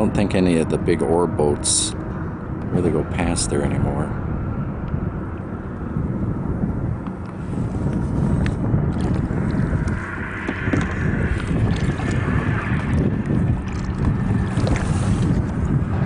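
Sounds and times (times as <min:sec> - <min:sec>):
wind rumbling on microphone: 0:00.0 - 0:16.0
water swishing: 0:07.4 - 0:16.0.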